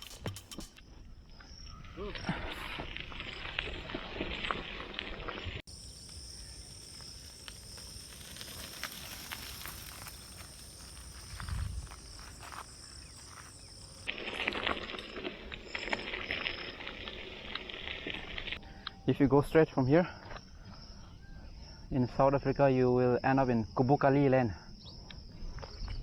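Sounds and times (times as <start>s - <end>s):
crackly crunching: 1.7s - 18.6s
high insect drone: 5.3s - 23.8s.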